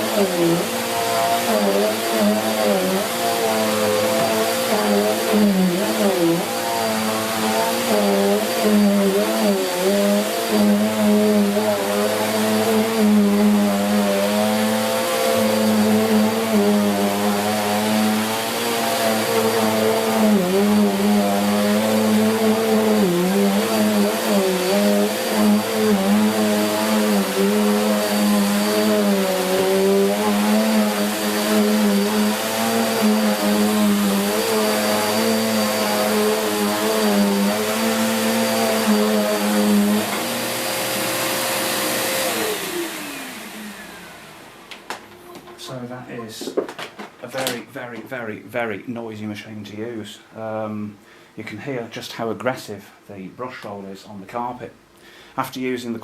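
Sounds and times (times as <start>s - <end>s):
brush roll beating carpet: 0.0s - 43.0s
upright vacuum running on carpet: 0.0s - 45.0s.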